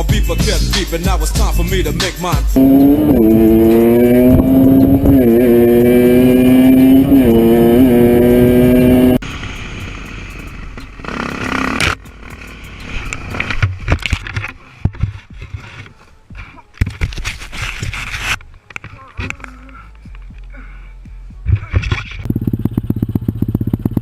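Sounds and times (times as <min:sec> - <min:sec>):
motorcycle engine revving: 0:02.6 - 0:12.8, 0:22.3 - 0:24.0.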